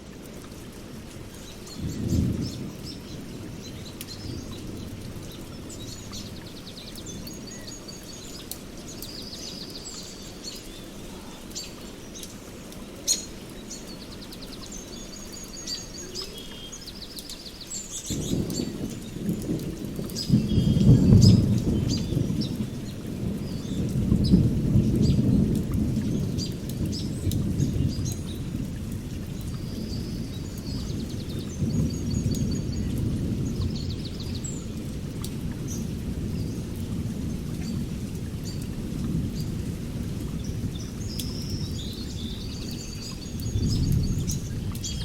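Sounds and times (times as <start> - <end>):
steady rain: 0.0 - 45.0
thunder rolling: 18.2 - 28.6.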